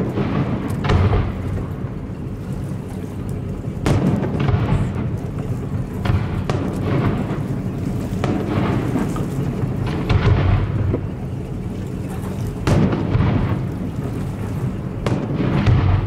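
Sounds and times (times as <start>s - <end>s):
fireworks booming: 0.0s - 2.0s, 3.8s - 11.2s, 12.6s - 14.0s, 14.8s - 16.0s
low rumble: 0.0s - 16.0s.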